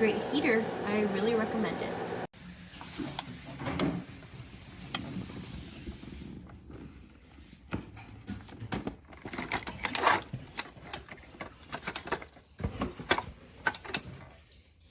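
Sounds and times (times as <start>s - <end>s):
clicks and knocks of handling: 7.6s - 14.7s.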